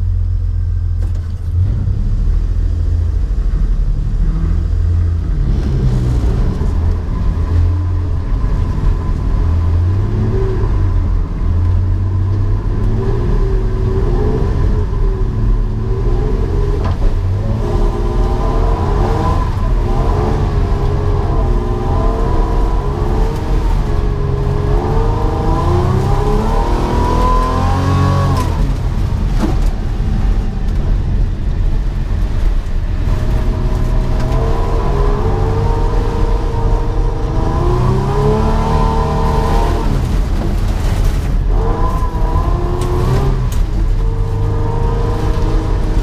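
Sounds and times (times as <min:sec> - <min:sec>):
heavy low rumble: 0:00.0 - 0:46.0
car engine revving hard: 0:12.4 - 0:30.6, 0:32.9 - 0:46.0.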